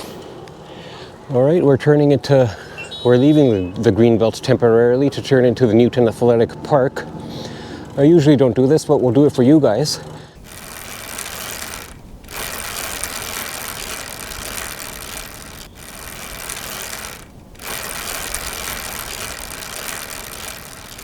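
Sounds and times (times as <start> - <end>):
bicycle tyre noise: 10.4 - 21.0
wind noise on camera: 10.4 - 21.0.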